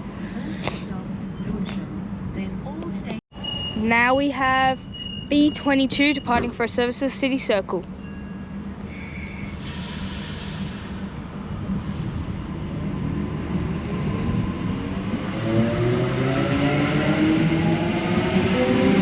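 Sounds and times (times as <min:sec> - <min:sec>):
electric train accelerating: 0:08.1 - 0:19.0
traction motors whining: 0:08.8 - 0:13.0.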